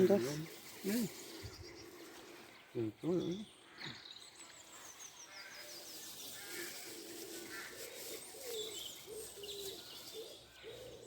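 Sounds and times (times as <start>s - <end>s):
small birds chirping and trilling: 0.0s - 11.0s
pigeon cooing: 6.6s - 11.0s.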